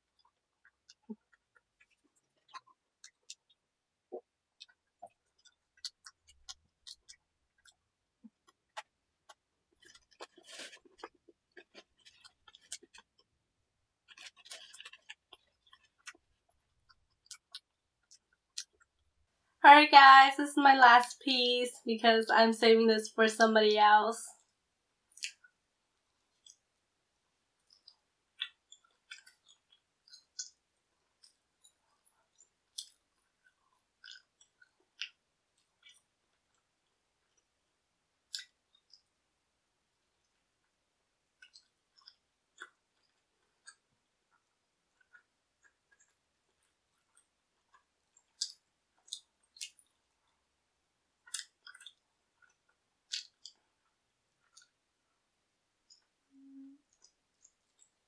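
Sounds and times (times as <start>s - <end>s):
chewing and crunching pizza: 0.0s - 3.6s, 4.2s - 13.4s, 14.0s - 19.0s, 25.1s - 26.7s, 27.6s - 37.6s, 41.4s - 50.5s, 51.1s - 55.2s
crisp chewing crunches: 9.8s - 13.3s, 14.0s - 16.3s, 27.7s - 30.6s, 51.3s - 53.8s.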